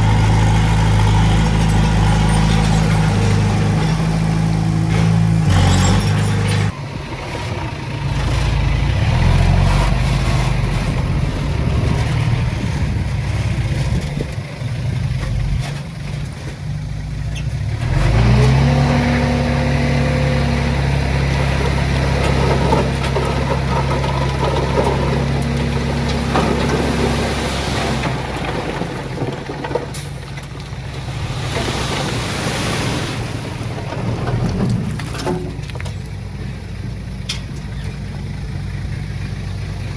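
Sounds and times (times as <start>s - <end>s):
diesel engine of heavy machinery: 0.0s - 39.9s.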